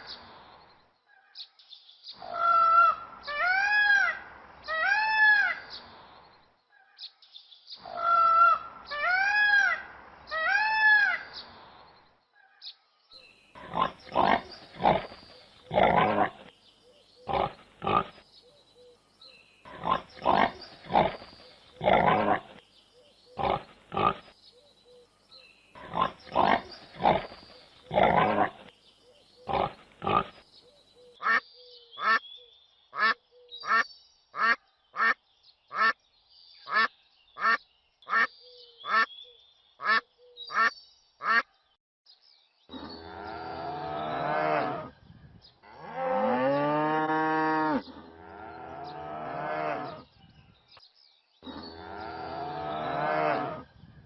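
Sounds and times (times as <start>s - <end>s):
loud irregular animal calls: 23.3s - 24.3s
duck quacks: 34.4s - 35.2s, 36.7s - 38.3s, 39.8s - 41.4s.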